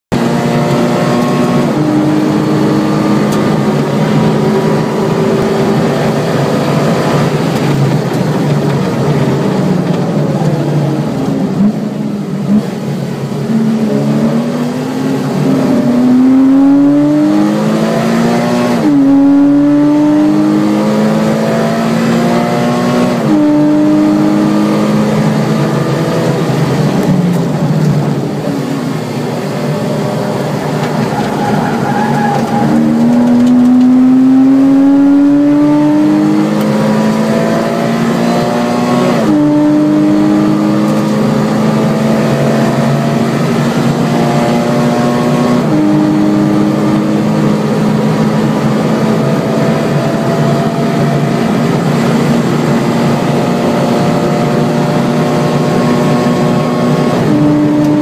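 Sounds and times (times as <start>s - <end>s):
car engine revving with gear shifts: 0.1s - 58.0s.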